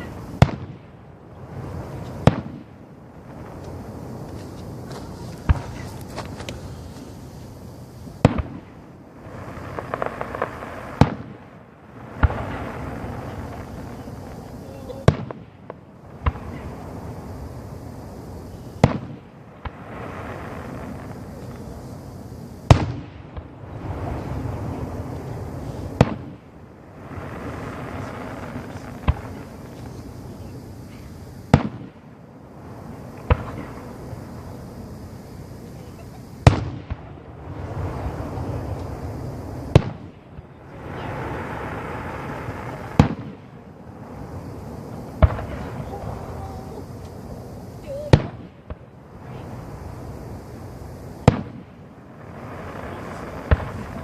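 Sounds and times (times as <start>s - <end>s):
firework shells bursting: 1.6s - 16.8s, 22.6s - 32.1s, 36.4s - 47.4s, 51.2s - 54.0s.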